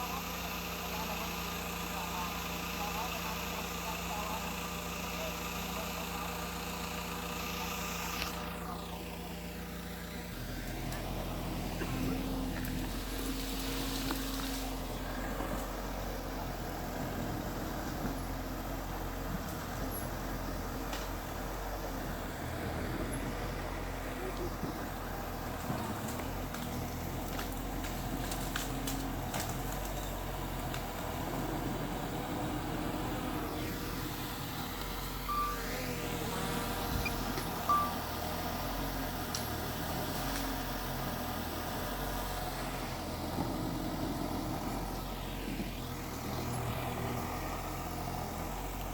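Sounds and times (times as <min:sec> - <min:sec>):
diesel engine running: 0:00.0 - 0:48.9
short high tone: 0:35.2 - 0:35.9, 0:37.0 - 0:38.1.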